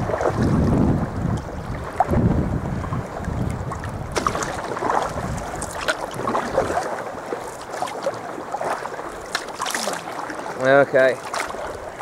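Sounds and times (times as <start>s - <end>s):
wind rumbling on microphone: 0.0s - 7.3s
water splashing and trickling: 0.0s - 12.0s.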